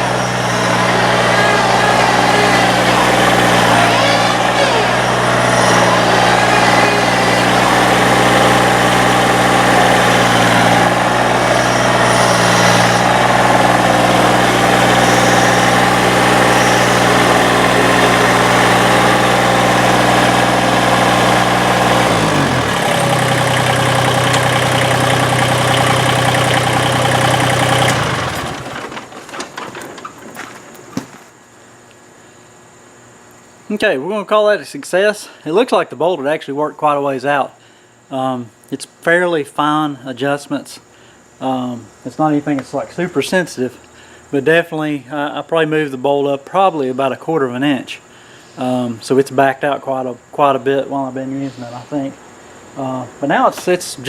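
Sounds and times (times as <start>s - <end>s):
tractor diesel engine running: 0.0s - 30.2s.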